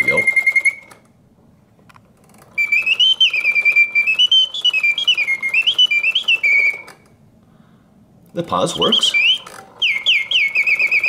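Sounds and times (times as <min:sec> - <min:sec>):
mechanical bird whistle warbling: 0:00.0 - 0:01.0, 0:02.6 - 0:07.1, 0:08.7 - 0:11.0.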